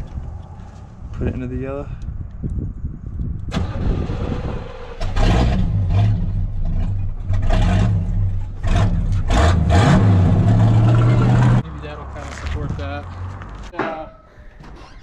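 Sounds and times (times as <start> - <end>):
engine cranking and starting: 3.5 - 5.8
engine revving with throttle blips: 3.6 - 11.6.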